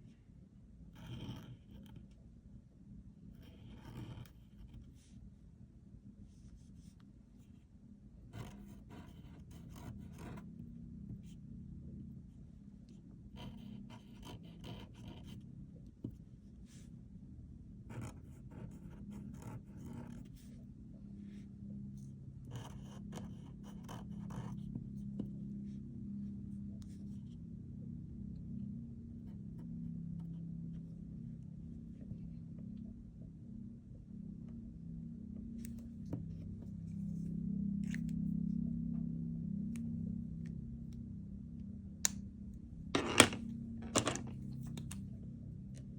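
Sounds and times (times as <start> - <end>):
low steady hum: 0.0 - 45.9
pen scratching on paper: 0.9 - 2.1, 3.3 - 5.1, 8.3 - 10.5, 13.3 - 15.4, 17.9 - 20.5, 22.5 - 24.7.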